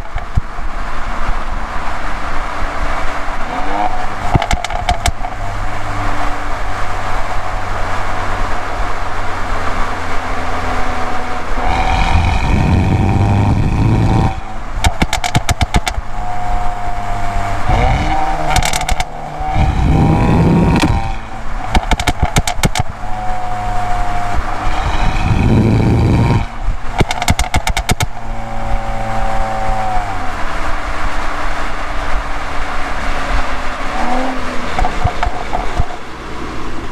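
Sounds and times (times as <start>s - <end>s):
exhaust crackles and pops: 0.0s - 0.7s, 2.9s - 5.4s, 11.4s - 17.0s, 17.6s - 36.2s
car engine revving hard: 1.3s - 36.9s.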